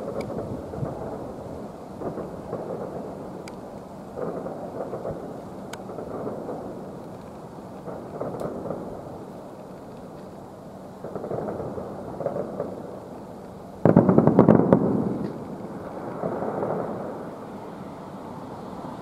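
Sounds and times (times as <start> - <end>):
distant firework booms: 4.2 - 7.0, 13.8 - 17.3.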